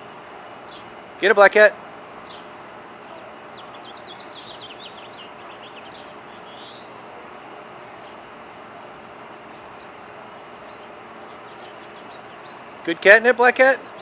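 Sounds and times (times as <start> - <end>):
steady background noise: 0.0 - 14.0
small bird chirping: 0.6 - 0.9, 2.2 - 7.4, 9.4 - 12.8.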